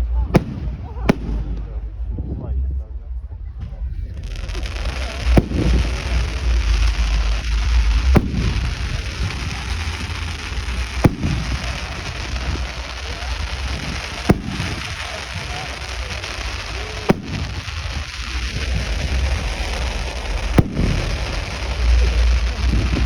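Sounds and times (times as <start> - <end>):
fireworks bangs: 0.0 - 2.2, 3.6 - 23.0
low rumble: 0.0 - 23.0
steady hiss: 4.1 - 23.0.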